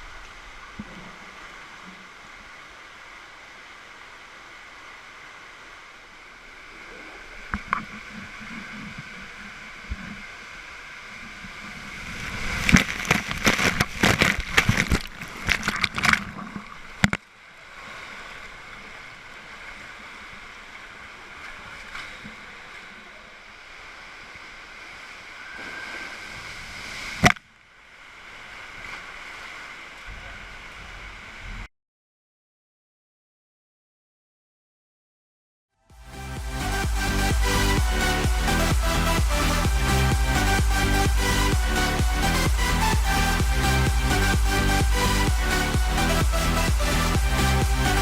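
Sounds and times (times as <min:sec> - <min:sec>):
water running through slide tube: 0:06.4 - 0:23.3
splashing and knocking: 0:12.6 - 0:16.6.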